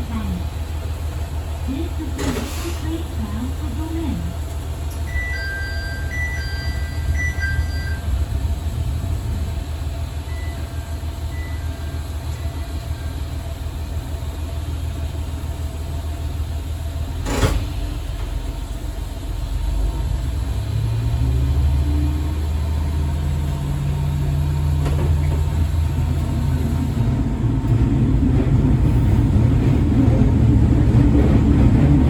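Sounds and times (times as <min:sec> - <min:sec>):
diesel railcar rumbling: 0:00.0 - 0:32.0
two-tone electronic beeping: 0:05.1 - 0:08.1, 0:10.3 - 0:12.0.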